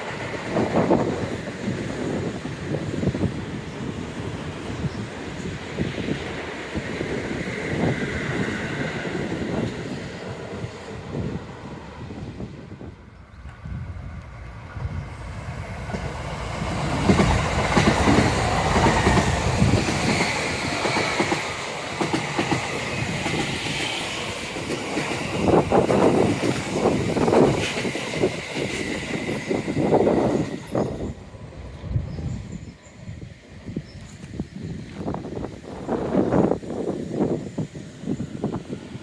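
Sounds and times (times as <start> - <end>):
train wheels clattering on rails: 13.4 - 31.8.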